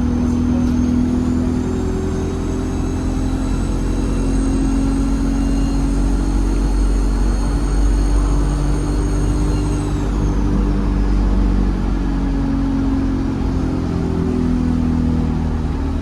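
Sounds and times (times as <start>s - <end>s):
low bus engine drone: 0.0s - 16.0s
turbocharger whistle: 0.5s - 10.6s.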